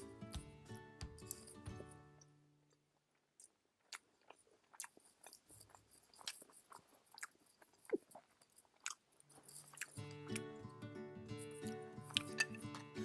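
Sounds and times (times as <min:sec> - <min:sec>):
person chewing noodles: 0:01.2 - 0:10.7.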